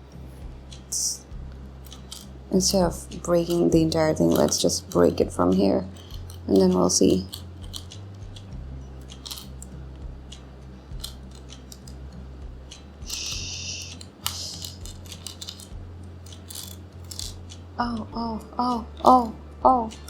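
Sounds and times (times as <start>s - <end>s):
low steady hum: 0.0s - 20.0s
plastic puzzle pieces clicking: 3.4s - 5.2s, 5.8s - 9.7s, 11.0s - 12.1s, 12.7s - 17.6s.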